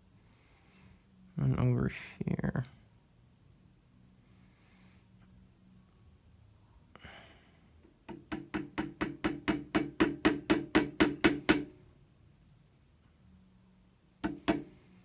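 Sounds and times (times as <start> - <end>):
nail tapped into wood: 8.0 - 11.7, 14.2 - 14.7.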